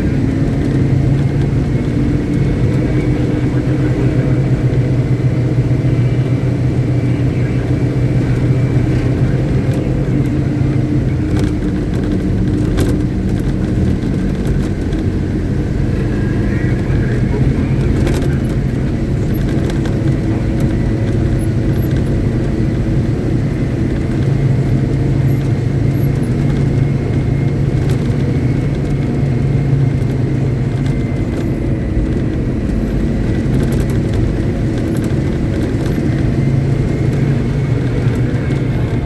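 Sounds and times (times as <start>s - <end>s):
diesel truck engine droning: 0.0s - 39.0s.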